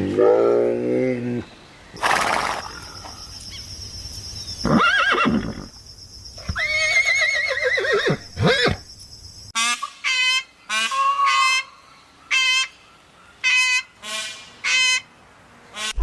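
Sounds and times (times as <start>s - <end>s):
horse whinnying: 4.6s - 5.7s, 6.4s - 8.8s.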